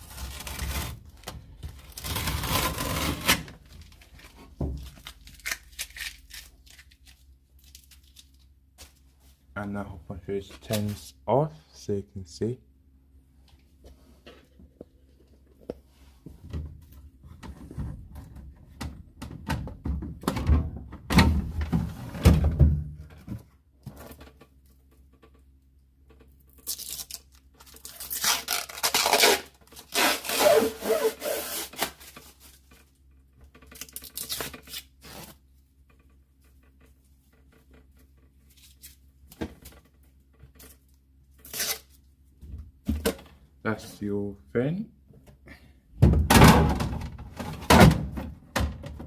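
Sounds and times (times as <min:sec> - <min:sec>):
tape peeling: 0:01.9 - 0:08.4, 0:26.5 - 0:32.6, 0:33.7 - 0:35.4, 0:41.4 - 0:42.0.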